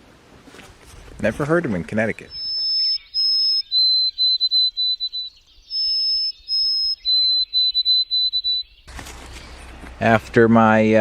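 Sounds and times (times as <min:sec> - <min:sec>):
songbird whistling: 0:02.3 - 0:09.9.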